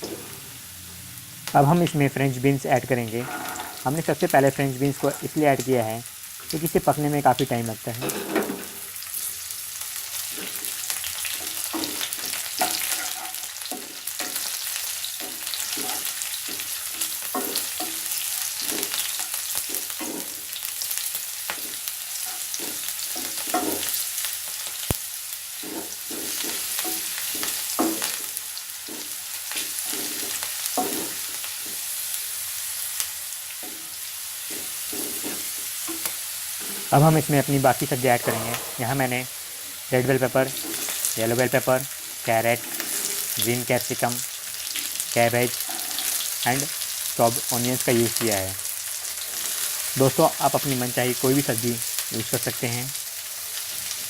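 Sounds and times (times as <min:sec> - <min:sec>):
spatula scraping and knocking pan: 0:00.0 - 0:00.6, 0:03.2 - 0:03.8, 0:08.0 - 0:09.0, 0:10.0 - 0:24.8, 0:25.5 - 0:32.1, 0:33.6 - 0:43.4, 0:45.6 - 0:46.4
beans sizzling in hot oil: 0:00.0 - 0:54.0.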